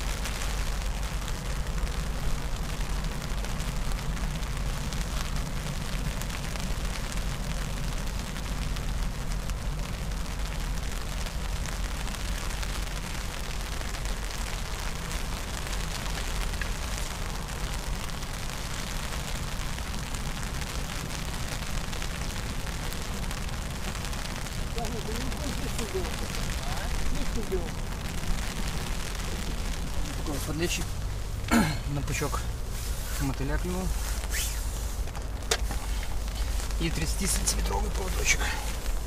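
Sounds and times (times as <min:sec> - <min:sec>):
wind buffeting microphone: 0:13.0 - 0:31.4.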